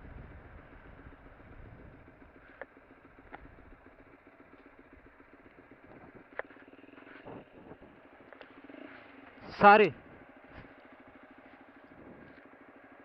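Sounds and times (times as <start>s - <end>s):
motorcycle engine humming: 0.0s - 13.0s.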